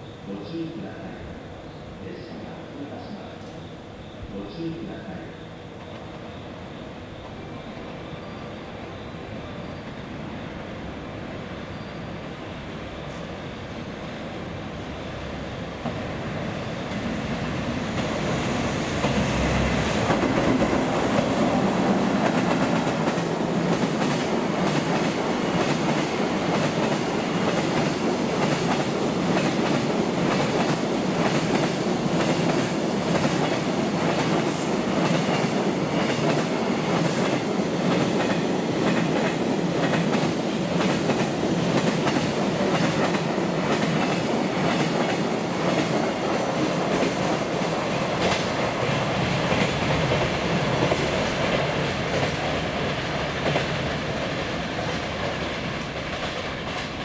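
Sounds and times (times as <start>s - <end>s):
train wheels rumbling on rails: 5.1s - 57.0s
clickety-clack over rail joints: 19.0s - 57.0s.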